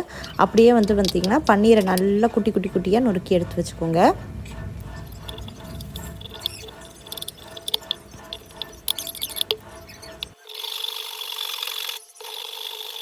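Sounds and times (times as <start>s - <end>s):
steady rasping rub: 0.0s - 10.4s
utensils clicking and knocking: 0.0s - 13.0s.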